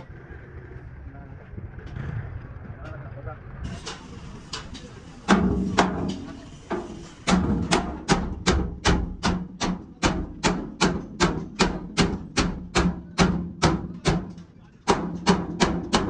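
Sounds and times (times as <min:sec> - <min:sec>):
hammer blows on sheet metal: 0:03.7 - 0:16.0.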